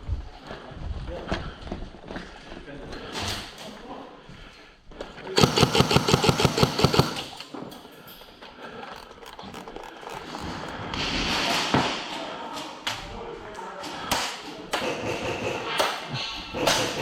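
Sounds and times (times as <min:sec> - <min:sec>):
airsoft rifle rapid fire: 0:05.4 - 0:07.4.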